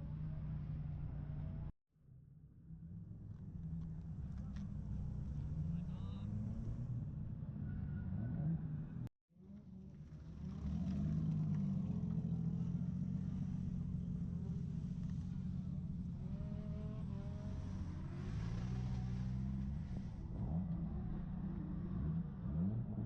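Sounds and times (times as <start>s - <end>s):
vehicle engine droning: 0.0s - 1.7s, 2.6s - 23.0s.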